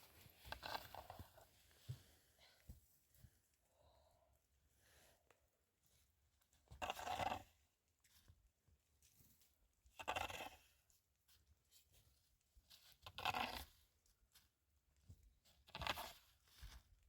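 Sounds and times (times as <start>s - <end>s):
rustling handling noise: 0.0s - 3.6s.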